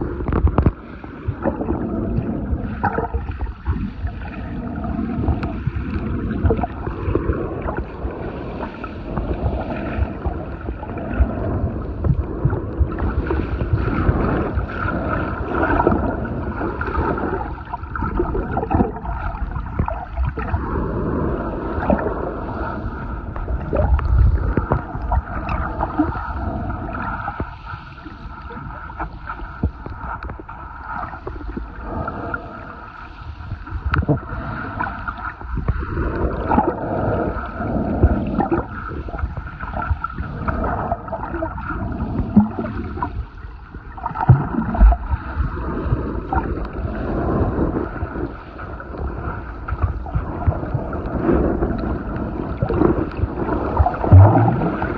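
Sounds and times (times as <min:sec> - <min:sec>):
water sloshing underwater: 0:00.0 - 0:54.9.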